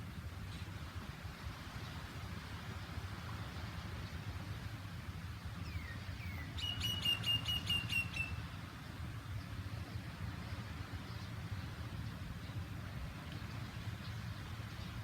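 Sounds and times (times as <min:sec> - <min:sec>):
bird calling high sharp notes: 0:05.8 - 0:08.4.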